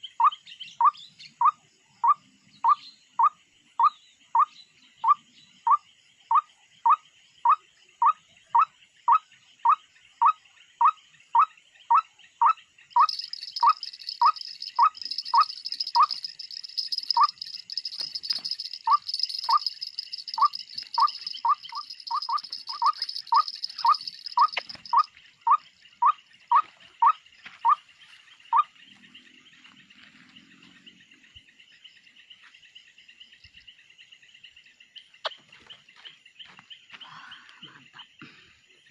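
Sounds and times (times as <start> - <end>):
high-pitched insect buzz: 13.0 - 25.1
insects trilling: 13.0 - 27.2.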